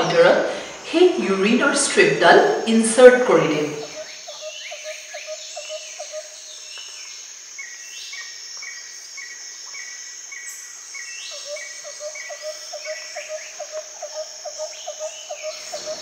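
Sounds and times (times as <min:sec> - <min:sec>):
high insect trill: 0:00.0 - 0:16.0.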